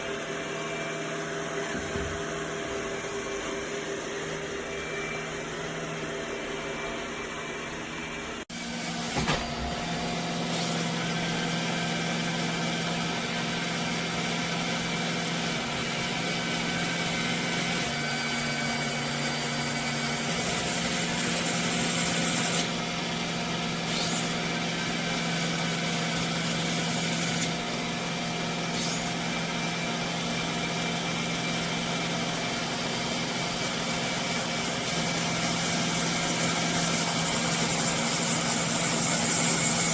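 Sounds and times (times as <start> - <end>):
robot vacuum motor hum: 0.0 - 8.4.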